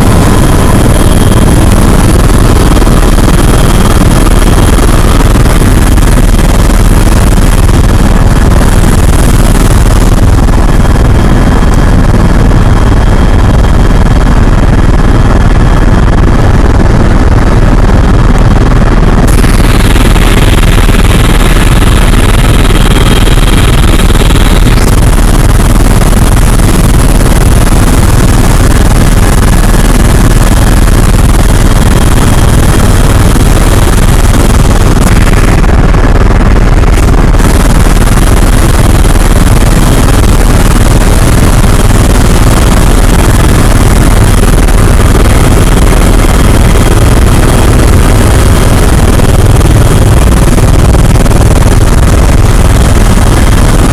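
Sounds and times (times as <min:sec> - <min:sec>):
helicopter cabin drone: 0:00.0 - 0:53.9.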